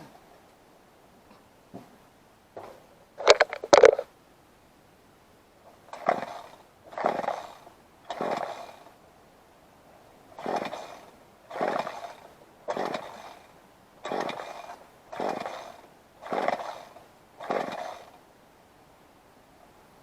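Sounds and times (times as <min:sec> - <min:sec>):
recoil starter rope pulls: 0:02.6 - 0:04.1, 0:05.8 - 0:09.0, 0:10.4 - 0:18.2.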